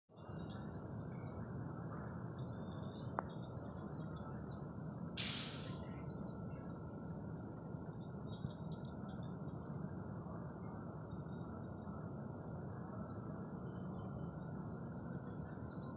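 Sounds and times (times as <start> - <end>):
brief hiss: 5.2 - 5.8.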